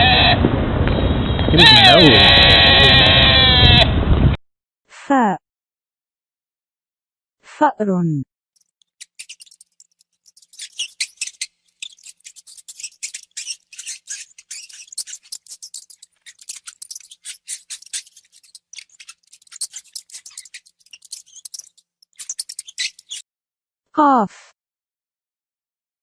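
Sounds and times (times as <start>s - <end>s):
mouse scratching and gnawing: 8.6s - 23.2s.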